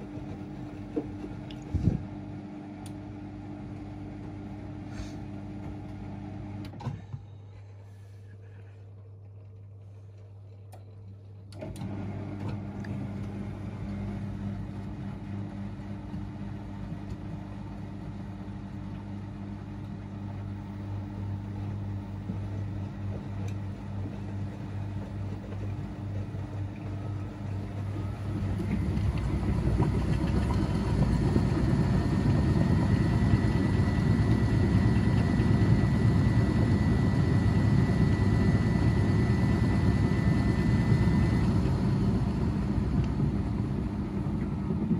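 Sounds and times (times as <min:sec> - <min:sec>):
washing machine running: 0:00.0 - 0:44.9
high whine of spin cycle: 0:24.7 - 0:44.9.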